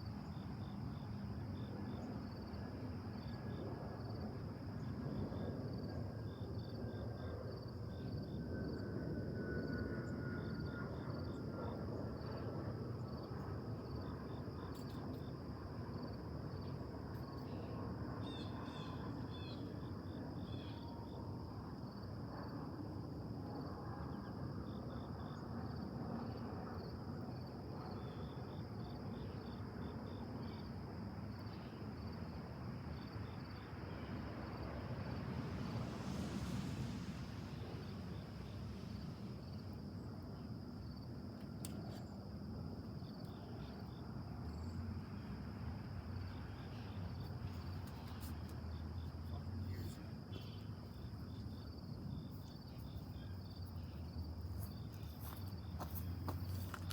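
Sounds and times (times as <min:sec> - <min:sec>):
insects trilling: 0:00.0 - 0:56.9.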